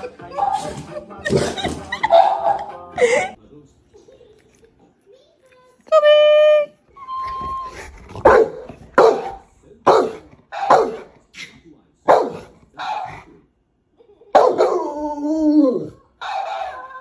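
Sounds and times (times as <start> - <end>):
dog barking: 0.3 - 0.7, 2.0 - 2.7, 8.2 - 11.1, 12.1 - 13.3, 14.3 - 15.0, 16.2 - 17.0
dog howling: 14.5 - 17.0.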